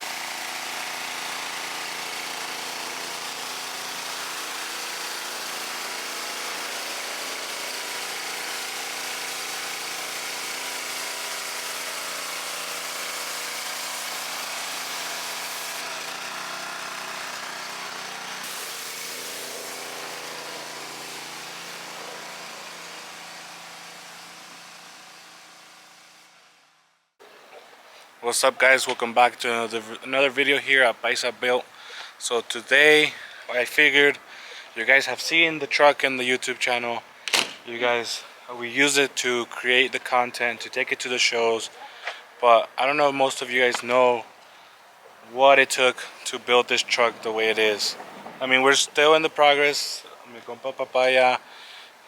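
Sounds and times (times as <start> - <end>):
engine running: 0.0 - 26.7.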